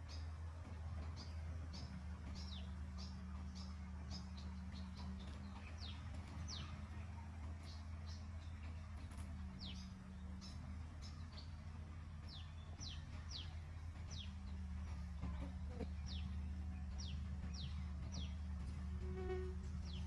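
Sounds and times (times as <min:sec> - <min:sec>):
steady low hum: 0:00.0 - 0:20.0
small bird chirping: 0:01.2 - 0:11.6, 0:12.2 - 0:14.6.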